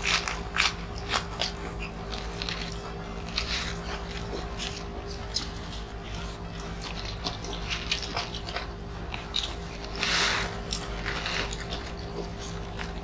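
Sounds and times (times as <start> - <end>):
wet chewing and lip smacks: 0.0 - 10.0
faint steady hum: 0.0 - 13.0.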